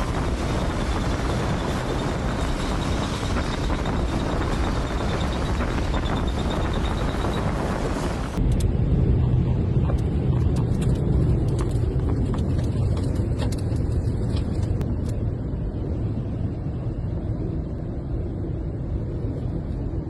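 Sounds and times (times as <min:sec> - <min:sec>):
storm wind on microphone: 0:00.0 - 0:20.0.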